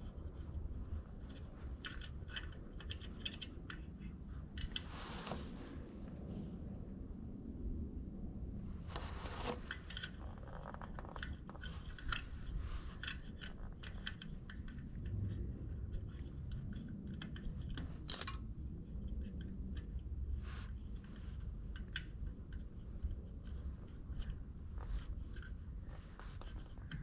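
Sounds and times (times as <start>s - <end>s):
clicks and scrapes of plastic: 0.4s - 5.8s, 8.9s - 27.0s
low rumble: 4.3s - 9.7s, 14.9s - 19.2s.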